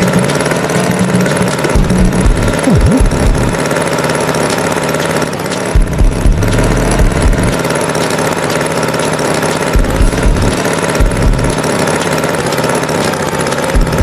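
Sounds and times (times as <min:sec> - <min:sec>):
tractor engine chugging: 0:00.0 - 0:14.0.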